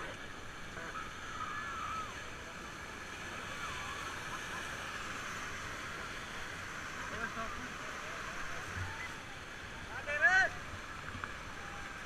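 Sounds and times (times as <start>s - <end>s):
faint voices calling: 0.0s - 5.3s.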